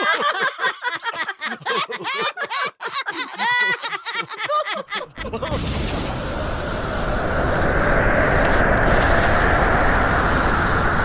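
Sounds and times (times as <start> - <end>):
steady rushing noise: 5.6 - 11.0.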